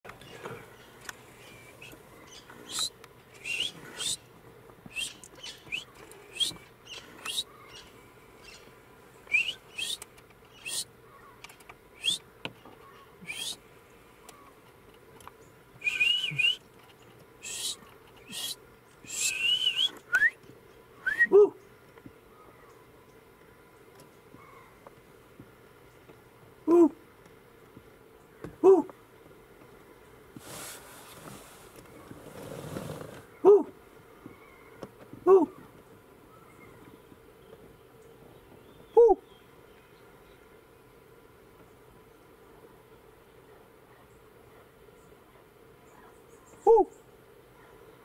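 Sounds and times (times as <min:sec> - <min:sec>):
birds chirping: 0:00.1 - 0:26.8, 0:31.1 - 0:43.3, 0:44.0 - 0:48.0
bird warbling calls: 0:00.2 - 0:04.2, 0:04.9 - 0:11.4, 0:12.8 - 0:13.6, 0:17.4 - 0:20.0, 0:24.4 - 0:24.8.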